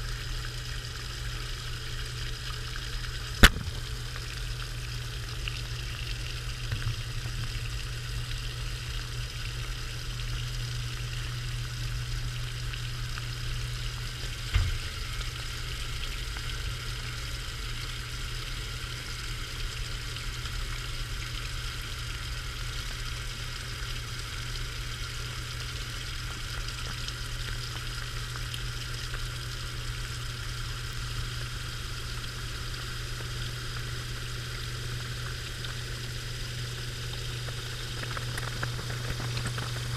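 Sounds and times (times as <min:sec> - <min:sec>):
washing machine hum: 0:00.0 - 0:39.9
single knock: 0:03.4 - 0:03.7, 0:14.5 - 0:14.8
water sloshing and hissing: 0:23.7 - 0:39.9.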